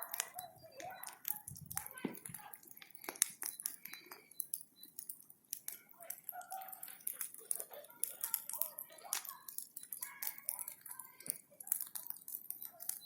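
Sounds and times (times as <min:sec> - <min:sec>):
bonfire crackling: 0:00.0 - 0:13.0.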